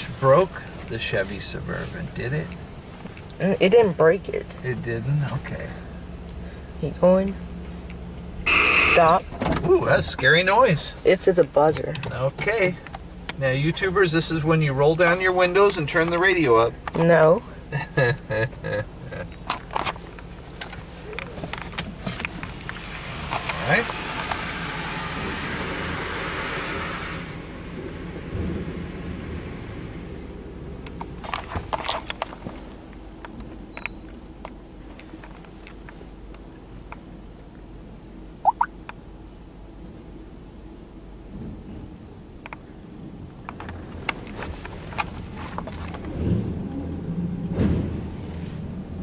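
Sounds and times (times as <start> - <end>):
car wash machinery rumble: 0.0 - 49.0
water jets spraying on car: 22.0 - 30.0.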